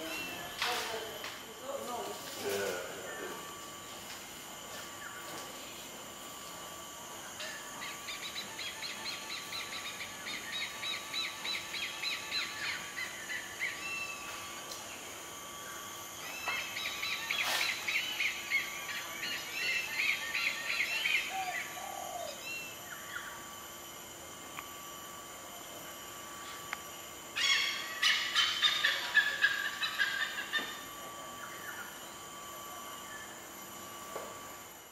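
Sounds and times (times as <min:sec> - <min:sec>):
bird calling in fast notes: 0:27.4 - 0:30.8.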